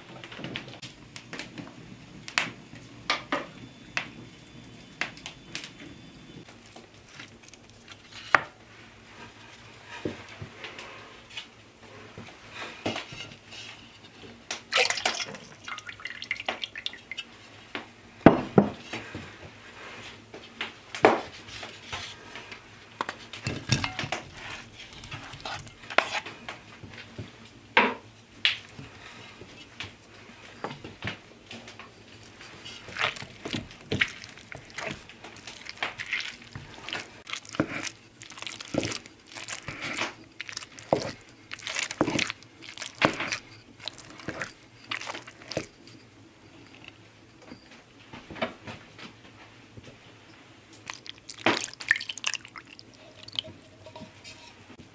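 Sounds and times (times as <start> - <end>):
liquid dripping: 14.7 - 17.3, 32.1 - 45.8, 50.8 - 54.5
utensils and dishes clinking: 23.4 - 26.4, 50.9 - 54.8.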